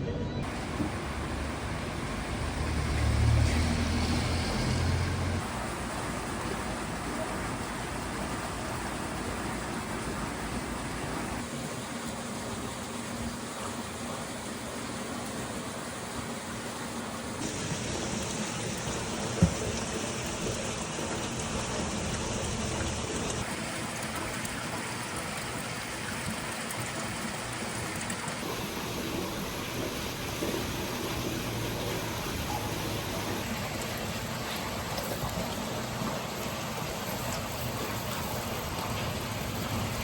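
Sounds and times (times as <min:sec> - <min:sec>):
rushing splashing water: 0:00.4 - 0:40.0.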